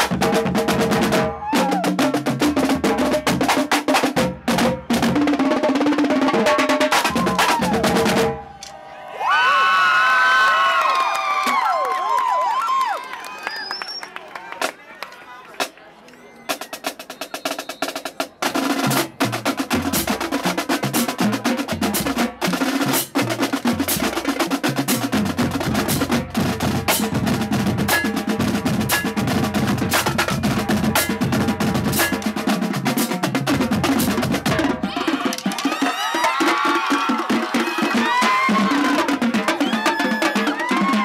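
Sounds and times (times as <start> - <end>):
crowd cheering and whistling: 1.3 - 1.9, 7.0 - 18.2, 35.0 - 41.0
snare drum rolls: 16.5 - 41.0.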